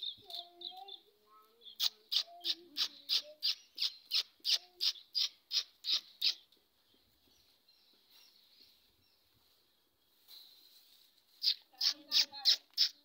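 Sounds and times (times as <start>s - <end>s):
bird sharp high chirps: 0.0s - 6.5s, 11.4s - 13.0s.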